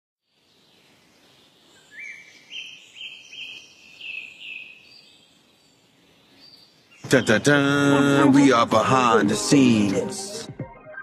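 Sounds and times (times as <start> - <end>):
bird chirping: 0.2 - 8.6
faint outdoor hiss: 0.2 - 10.4.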